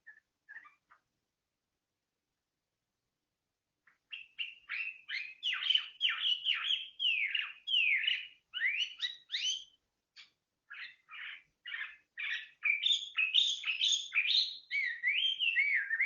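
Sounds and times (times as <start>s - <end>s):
songbird whistling song: 0.0s - 1.1s, 3.8s - 16.0s.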